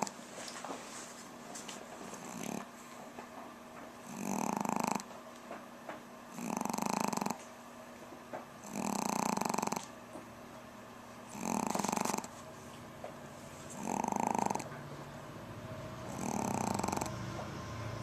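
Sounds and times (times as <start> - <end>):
dog snoring: 2.1 - 2.7, 4.0 - 5.1, 6.3 - 7.5, 8.6 - 10.0, 11.2 - 12.4, 13.7 - 14.8, 16.0 - 17.8.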